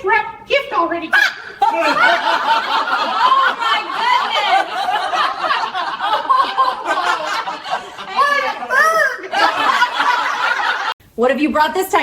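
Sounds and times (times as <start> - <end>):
voices: 0.0 - 10.9
people laughing: 1.2 - 11.0.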